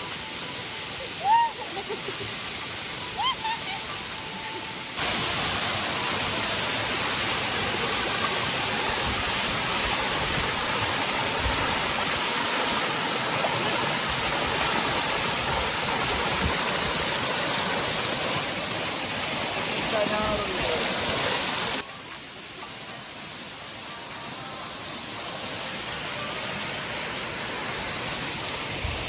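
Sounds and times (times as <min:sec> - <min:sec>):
waterfall roaring: 0:00.0 - 0:29.0.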